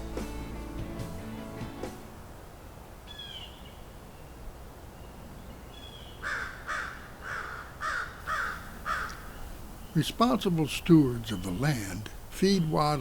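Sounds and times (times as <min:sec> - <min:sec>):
faint songbird chirps: 0:03.1 - 0:06.4, 0:08.2 - 0:13.0
crow cawing: 0:06.2 - 0:09.4.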